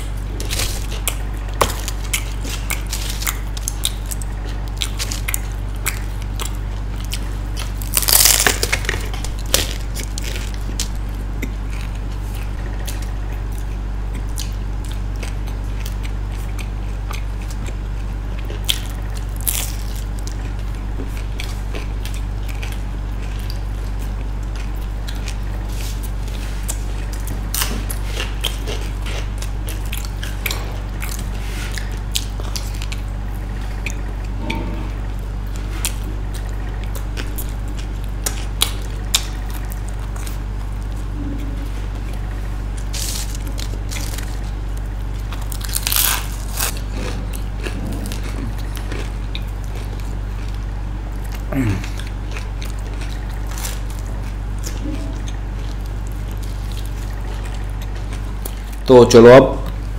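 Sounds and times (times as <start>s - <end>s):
person biting and chewing: 0.0s - 58.8s
steady low hum: 0.0s - 59.9s
sharp crunches: 0.4s - 11.0s, 42.8s - 50.1s.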